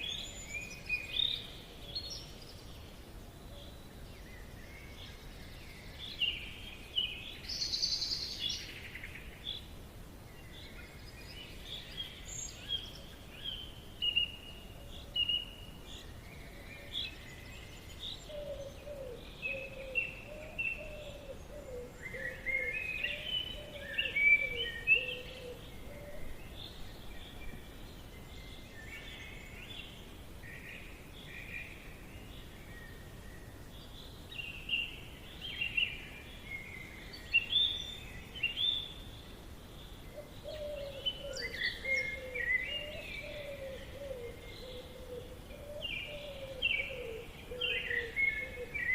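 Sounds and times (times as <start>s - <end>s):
lower-pitched bird calls: 16.4s - 27.6s, 40.1s - 48.9s.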